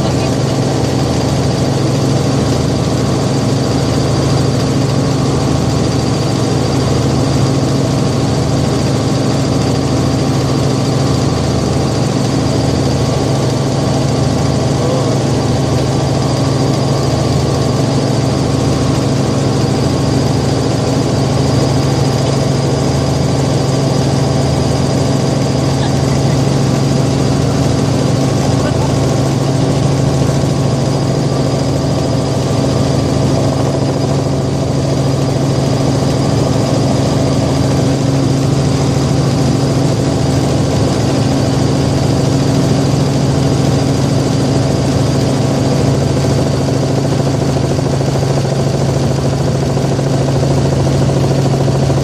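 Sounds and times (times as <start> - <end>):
helicopter drone from inside cabin: 0.0 - 52.0
high whine: 24.9 - 31.7.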